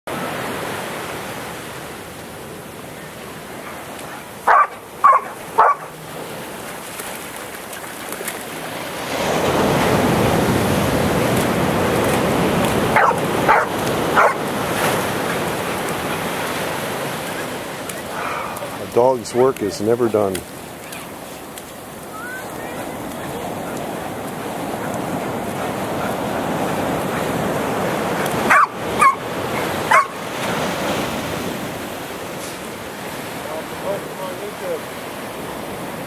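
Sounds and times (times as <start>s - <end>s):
ocean surf: 0.1s - 36.0s
dog barking sharply: 4.4s - 6.0s, 12.9s - 14.4s, 28.5s - 30.2s.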